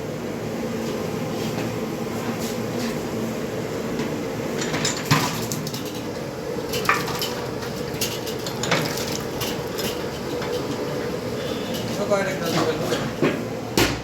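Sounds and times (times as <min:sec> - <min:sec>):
steady background noise: 0:00.0 - 0:14.0
metal utensils clanking on pots: 0:04.6 - 0:13.2.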